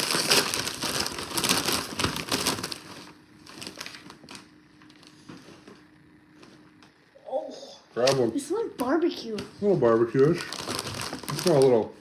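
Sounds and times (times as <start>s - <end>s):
chip bag crinkling: 0.0s - 5.1s, 10.0s - 12.0s.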